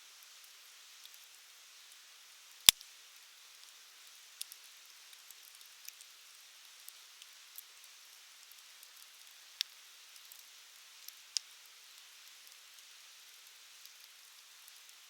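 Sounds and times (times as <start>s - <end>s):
wood fire crackling: 4.4s - 6.1s.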